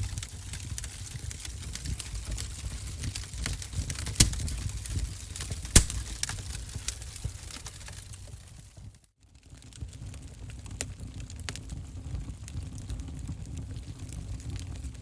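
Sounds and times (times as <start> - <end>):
low rumble of flame: 0.0 - 15.0
wood fire crackling and popping: 0.0 - 15.0.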